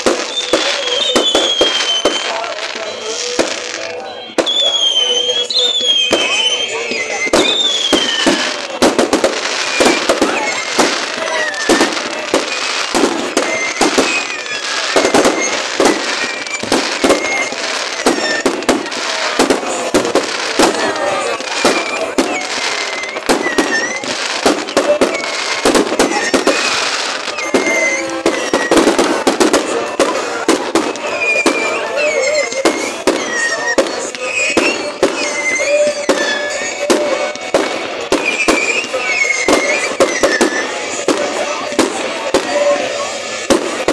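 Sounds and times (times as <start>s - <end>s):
fireworks bangs and crackles: 0.0s - 43.9s.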